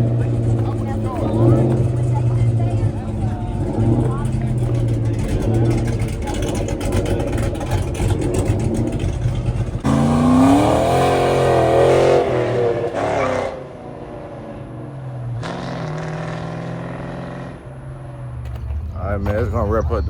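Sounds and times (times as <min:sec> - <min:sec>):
car engine revving and idling: 0:00.0 - 0:20.0.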